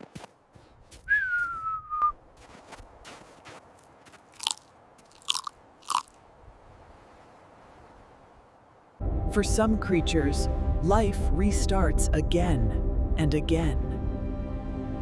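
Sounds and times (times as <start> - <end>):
whistle-like falling tone: 1.1 - 2.2
crunching and chewing clicks: 4.3 - 6.2.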